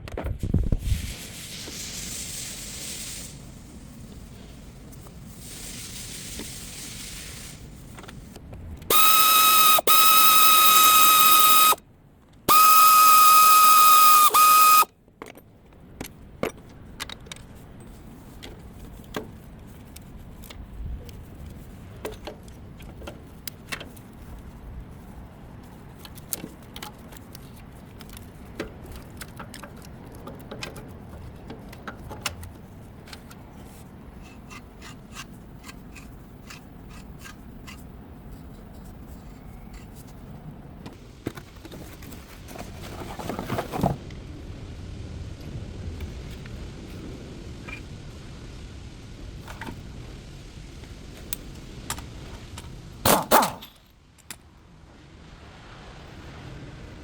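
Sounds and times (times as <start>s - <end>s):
high whistle-like tone: 8.9s - 11.8s, 12.5s - 14.9s.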